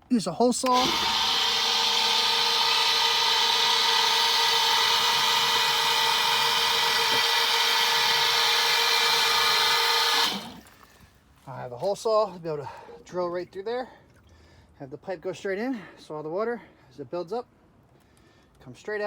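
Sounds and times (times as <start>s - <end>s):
power drill cutting with hole saw: 0.6s - 10.7s.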